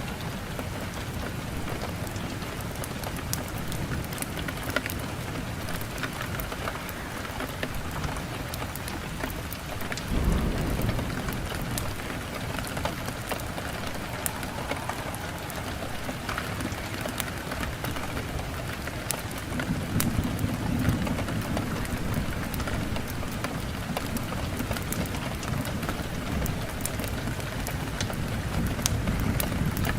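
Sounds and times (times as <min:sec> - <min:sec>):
low rumbling of flames: 0:00.0 - 0:29.9
wood fire crackling: 0:01.0 - 0:20.5.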